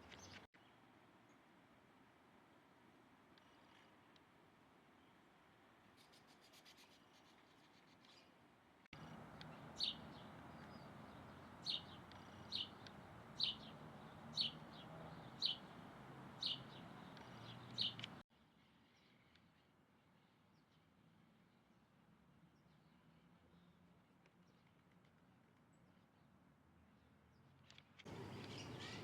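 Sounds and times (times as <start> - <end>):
steady outdoor hiss: 0.0 - 23.3, 28.1 - 29.0
bird giving sharp calls: 28.1 - 29.0.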